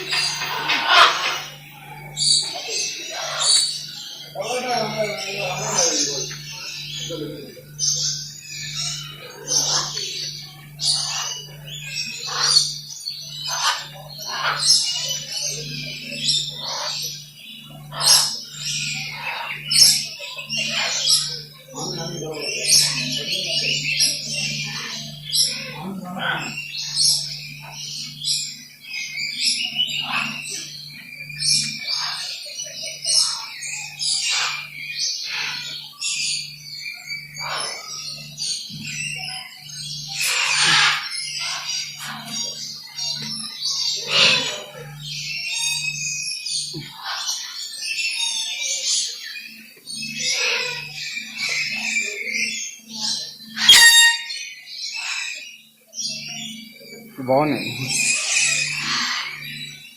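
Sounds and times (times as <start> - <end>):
steady low hum: 0.0 - 47.7
birds calling and chirping: 0.0 - 59.9
loud harsh bird calls: 0.0 - 59.9.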